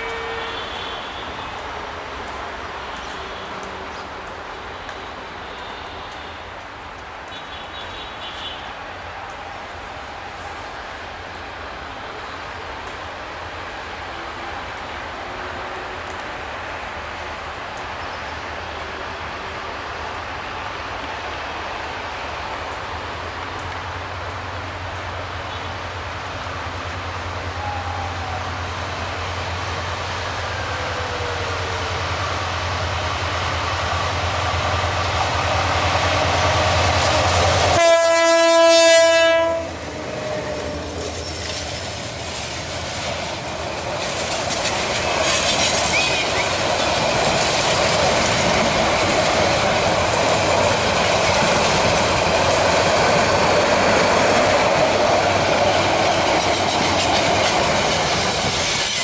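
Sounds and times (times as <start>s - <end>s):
locomotive horn blast: 0.0s - 2.0s, 2.8s - 6.5s, 37.6s - 39.8s
train passing at speed: 0.0s - 59.0s
train wheels clattering: 40.6s - 59.0s.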